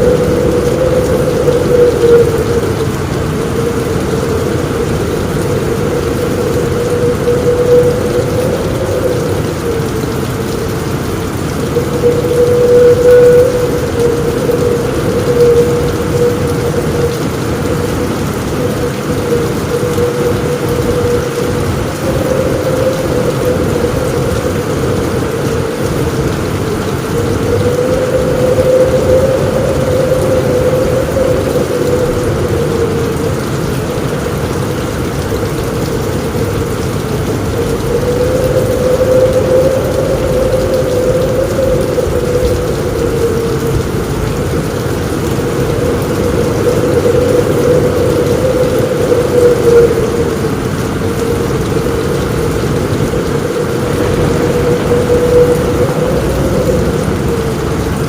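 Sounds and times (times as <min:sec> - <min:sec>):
rain falling on a roof: 0:00.0 - 0:58.0
low rumble: 0:50.0 - 0:58.0.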